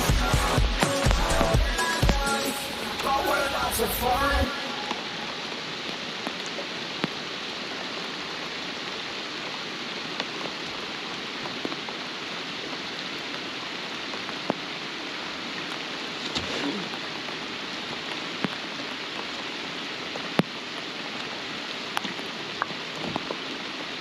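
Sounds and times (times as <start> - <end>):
steady rain: 0.0 - 24.0
raindrop ticks: 5.8 - 7.3, 10.0 - 12.0, 12.6 - 14.7, 18.0 - 19.4, 20.0 - 23.7.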